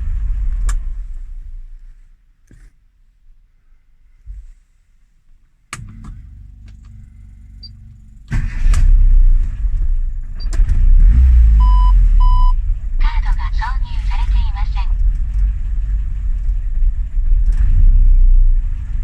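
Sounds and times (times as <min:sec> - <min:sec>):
car engine cranking: 0:00.0 - 0:01.9, 0:05.7 - 0:19.0
car engine running: 0:05.8 - 0:19.0
short beeps: 0:11.6 - 0:12.6.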